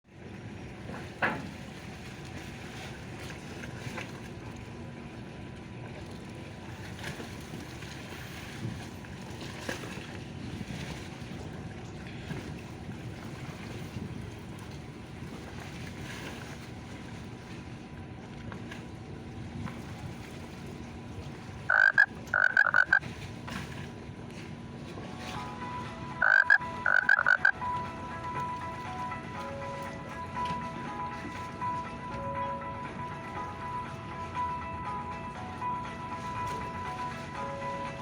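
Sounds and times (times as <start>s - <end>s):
water lapping: 0.1s - 38.0s
ship engines rumbling: 16.7s - 38.0s.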